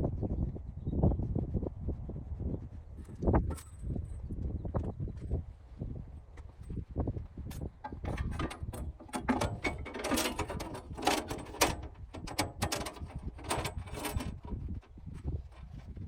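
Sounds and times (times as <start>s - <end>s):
metal parts scraping: 7.8s - 14.7s
metal clicks and clanks: 7.8s - 15.7s.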